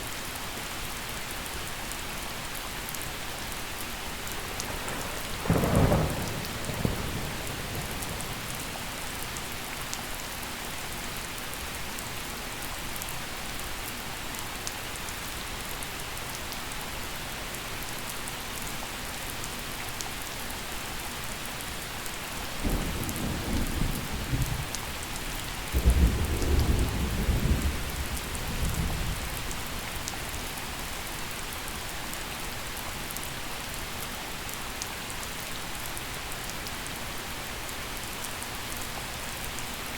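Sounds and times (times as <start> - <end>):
gentle rain falling: 0.0 - 39.9
thunder rumbling: 4.1 - 9.5, 25.6 - 29.8.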